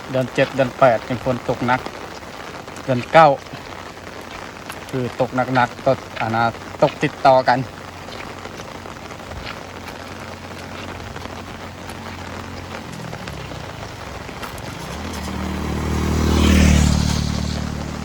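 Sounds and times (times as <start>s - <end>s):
heavy rain falling: 0.0s - 18.0s
tyres hissing on wet road: 0.0s - 18.0s
vehicle engine approaching: 7.8s - 18.0s.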